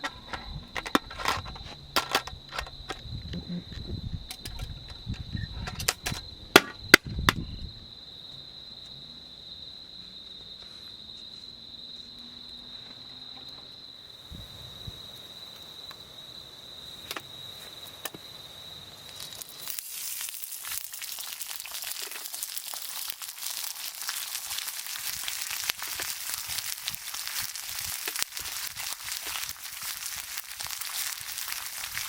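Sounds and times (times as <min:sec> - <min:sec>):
insect trilling: 0:12.0 - 0:32.0
wood fire crackling: 0:17.0 - 0:32.0.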